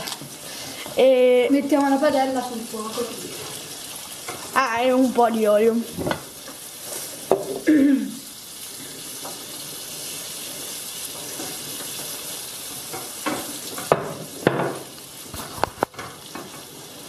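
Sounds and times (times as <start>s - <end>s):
meat sizzling in a pan: 0.0s - 17.0s.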